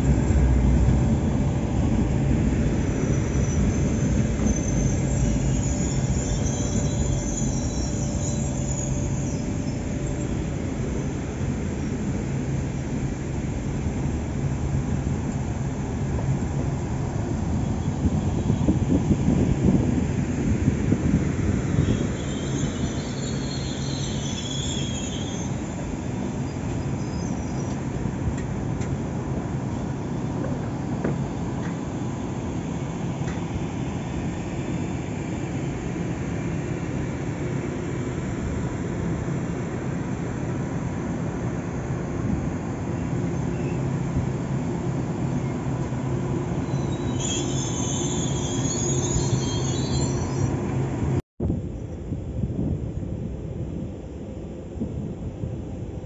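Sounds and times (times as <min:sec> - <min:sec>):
train rumbling past: 0:00.0 - 0:56.0
high wheel squeal: 0:01.2 - 0:12.3, 0:17.5 - 0:28.1, 0:42.8 - 0:51.2.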